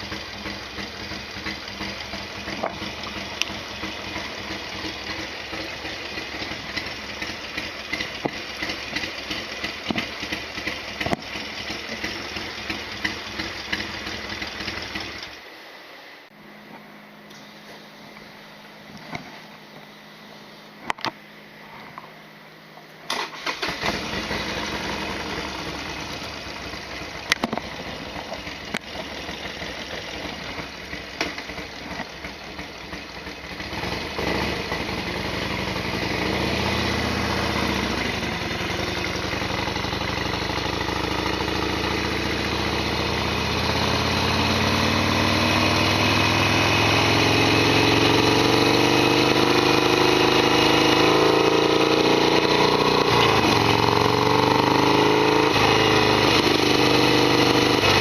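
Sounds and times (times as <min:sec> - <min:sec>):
motorcycle engine idling and revving: 0:00.0 - 0:15.6, 0:21.9 - 0:58.0.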